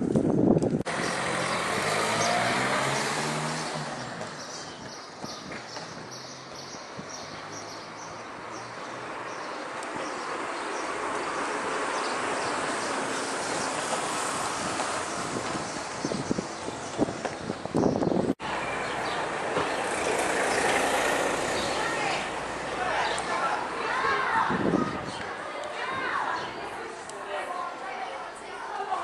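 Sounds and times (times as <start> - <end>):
wind blowing: 0.0 - 27.2
motor vehicle passing by: 0.9 - 17.5, 18.4 - 24.5.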